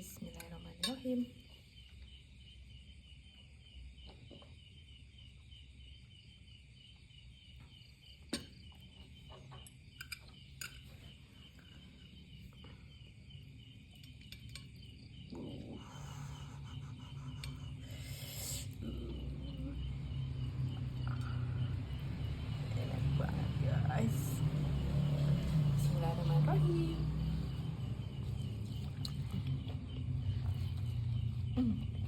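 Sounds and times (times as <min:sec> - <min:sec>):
cricket chirping: 0:00.0 - 0:32.0.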